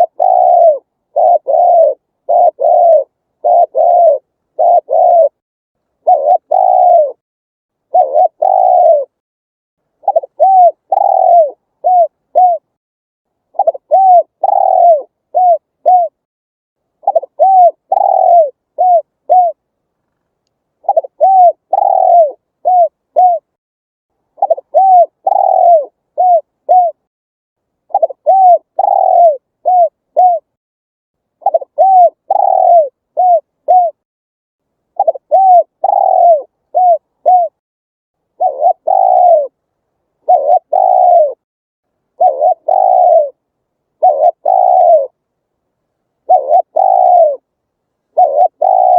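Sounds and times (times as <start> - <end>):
dove cooing: 0.0 - 5.4, 6.0 - 7.2, 7.8 - 9.2, 10.0 - 12.7, 13.5 - 16.2, 17.0 - 19.6, 20.8 - 23.6, 24.4 - 27.1, 27.9 - 30.5, 31.4 - 34.0, 35.0 - 37.6, 38.3 - 39.6, 40.2 - 41.4, 42.1 - 43.4, 44.0 - 45.2, 46.2 - 47.5, 48.1 - 48.9.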